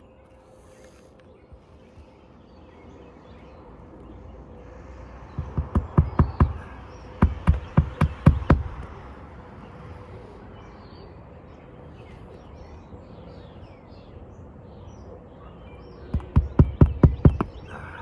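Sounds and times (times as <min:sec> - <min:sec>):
hammer driving roofing nails: 0:05.4 - 0:08.9, 0:16.1 - 0:17.7.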